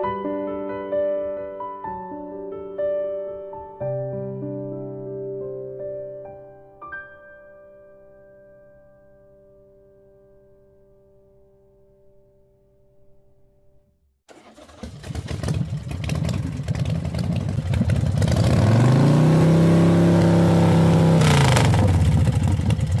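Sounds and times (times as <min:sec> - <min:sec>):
motorcycle engine revving: 0:14.3 - 0:23.0.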